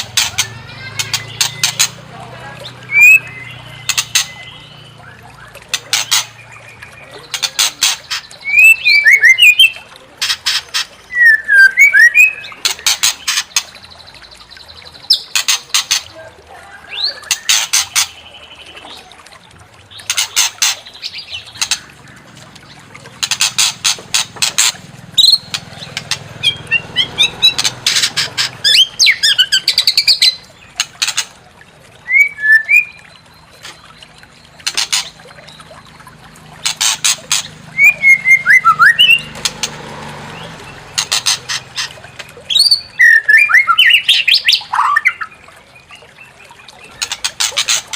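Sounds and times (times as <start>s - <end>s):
bird harsh rattling calls: 0.0s - 16.2s, 16.8s - 18.4s, 19.9s - 31.4s, 32.1s - 45.3s, 46.8s - 47.9s
bird whistled notes: 32.1s - 33.0s.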